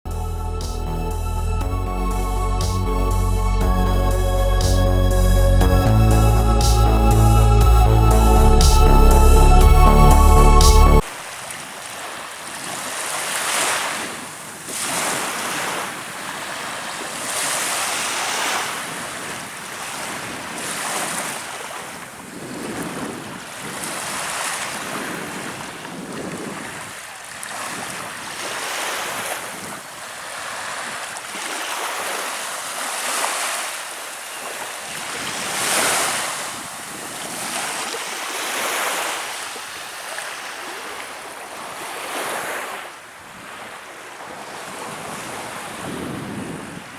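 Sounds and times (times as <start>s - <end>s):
small waves breaking ashore: 11.0s - 46.9s.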